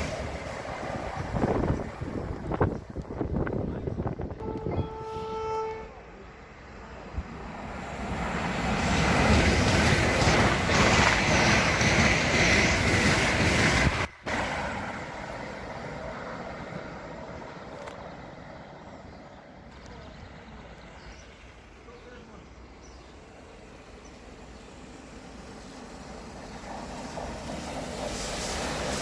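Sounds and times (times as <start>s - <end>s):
train passing at speed: 0.0s - 29.0s
train horn: 4.3s - 6.1s.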